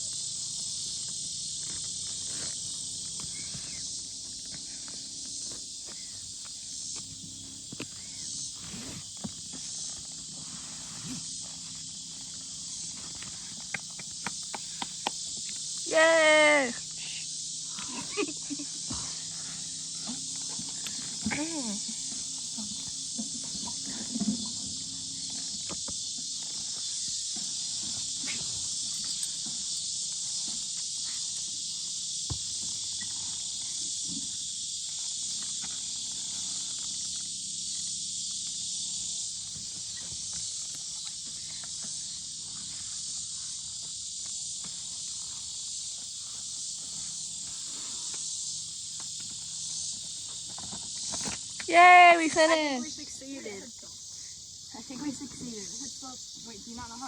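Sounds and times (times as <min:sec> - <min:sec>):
insects buzzing chorus: 0:00.0 - 0:57.0.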